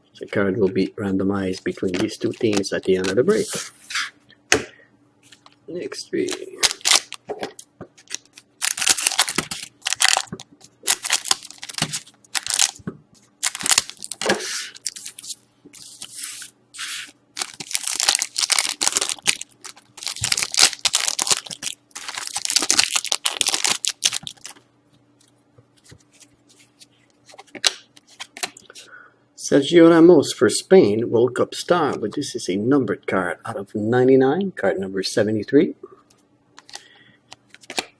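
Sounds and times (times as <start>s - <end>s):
foil wrappers tearing and crinkling: 6.2s - 7.2s, 8.0s - 12.8s, 13.4s - 24.6s.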